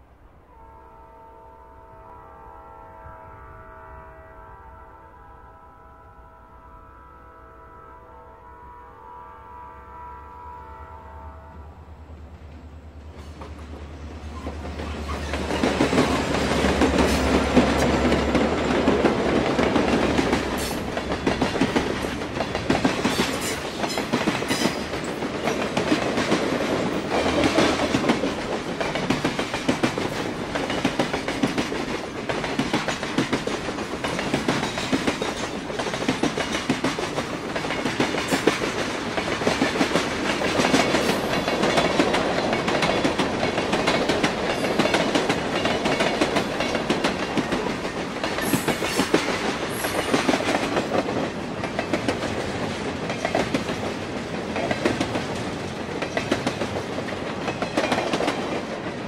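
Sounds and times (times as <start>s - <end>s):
train wheels clacking over joints: 13.1s - 59.0s.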